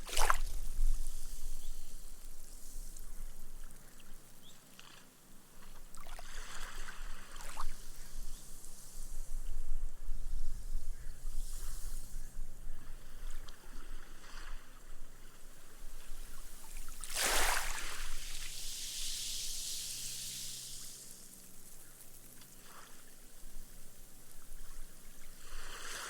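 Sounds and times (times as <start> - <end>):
gentle waves lapping on sand: 0.0 - 8.0, 12.8 - 26.0
foam fizzing into sand: 16.3 - 26.0.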